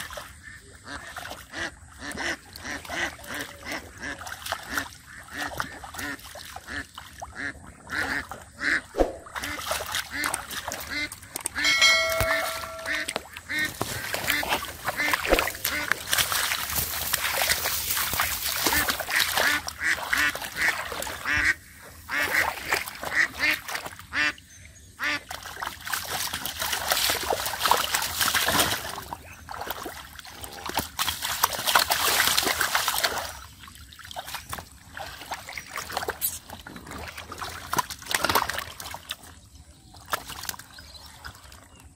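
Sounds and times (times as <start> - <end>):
splashing in water: 0.0 - 24.2, 25.2 - 41.8
ducks quacking: 0.3 - 16.4, 17.4 - 24.4, 25.0 - 25.3.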